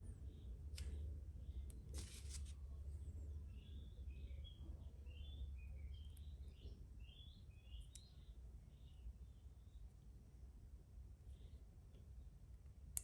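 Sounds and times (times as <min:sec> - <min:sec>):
faint bird chirps: 0:03.0 - 0:09.9.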